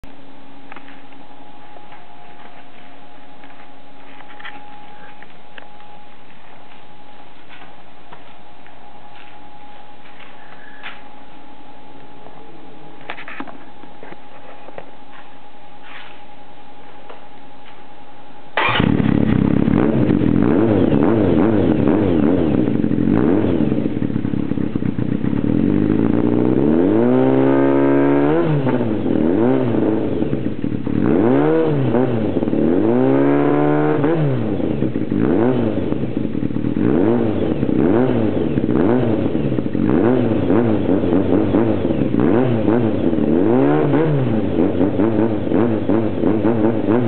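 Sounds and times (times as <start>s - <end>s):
motorcycle engine idling: 0.0s - 47.0s
motorcycle engine revving: 0.7s - 16.2s, 18.5s - 47.0s.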